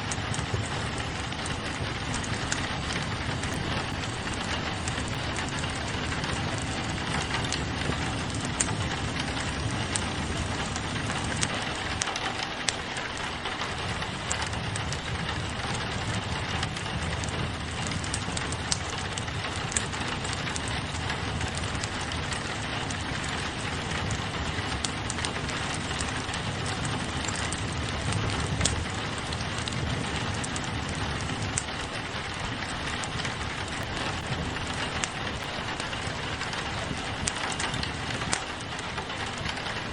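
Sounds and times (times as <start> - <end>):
rain on a window: 0.0 - 39.9
wood fire crackling: 0.0 - 39.9.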